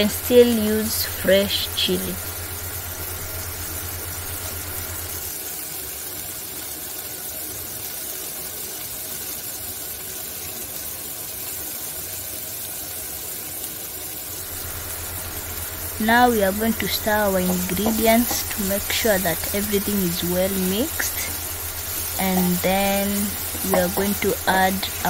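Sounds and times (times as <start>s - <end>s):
low hum: 0.0s - 5.3s, 14.4s - 25.0s
vegetables sizzling in a pan: 0.0s - 25.0s.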